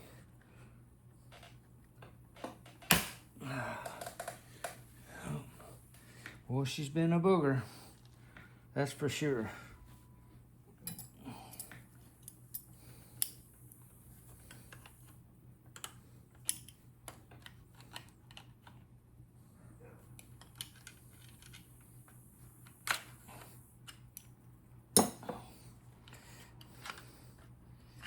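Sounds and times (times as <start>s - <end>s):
tools clicking on metal parts: 10.8s - 13.4s, 15.8s - 18.5s.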